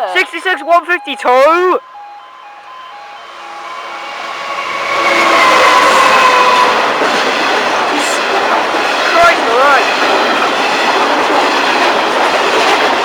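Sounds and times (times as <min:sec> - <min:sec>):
level crossing alarm: 0:00.0 - 0:08.4
freight locomotive passing: 0:00.0 - 0:13.0.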